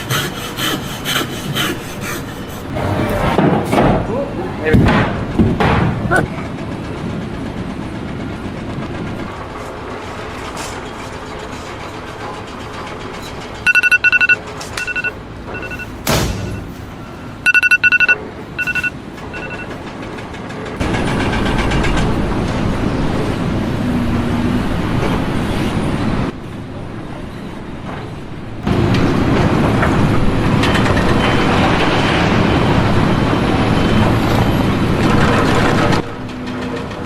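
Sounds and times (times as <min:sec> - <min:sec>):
heavy machinery engines running: 0:00.0 - 0:37.0
short electronic beeps: 0:13.7 - 0:16.7, 0:17.4 - 0:19.7.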